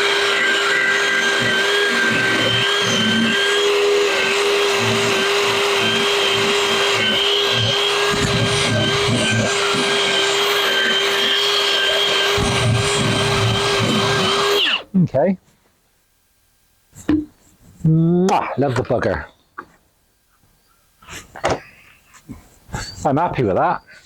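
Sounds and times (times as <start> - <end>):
carving tool whining: 0.0 - 14.9.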